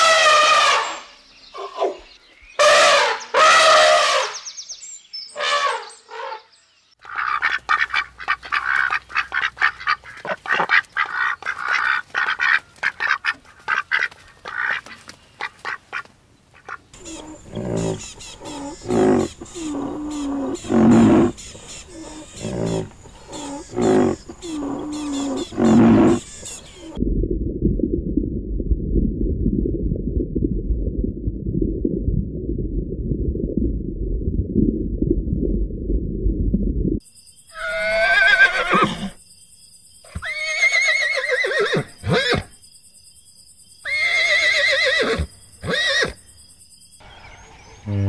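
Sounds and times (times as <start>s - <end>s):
horse whinnying: 17.0s - 26.3s, 37.5s - 39.2s, 40.1s - 42.5s, 43.9s - 46.2s
large animal bellowing: 17.0s - 26.6s.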